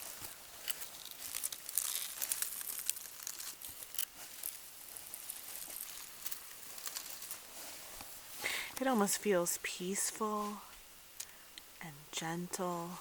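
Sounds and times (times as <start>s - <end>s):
crinkly rustling and crackling: 0.0s - 9.2s
small irregular clicks: 0.2s - 7.4s.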